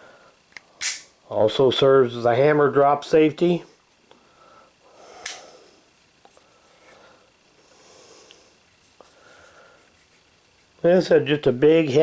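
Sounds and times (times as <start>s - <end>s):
pistol handling clicks: 0.5s - 1.1s
soft breathing: 4.1s - 10.7s.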